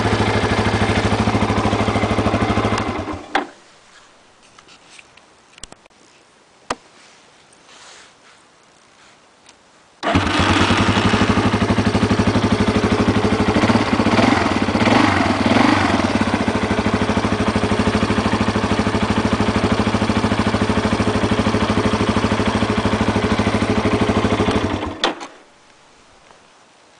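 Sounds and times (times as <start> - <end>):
atv engine revving: 0.0 - 3.4, 10.0 - 25.1
atv engine starting and idling: 0.0 - 3.5, 10.0 - 25.3.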